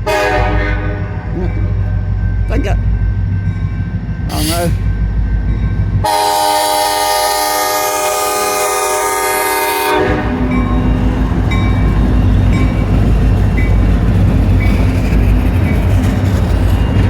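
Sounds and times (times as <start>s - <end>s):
diesel locomotive horn: 0.0s - 2.1s, 4.3s - 4.8s, 6.0s - 10.7s
locomotive diesel engines rumbling: 0.0s - 17.0s.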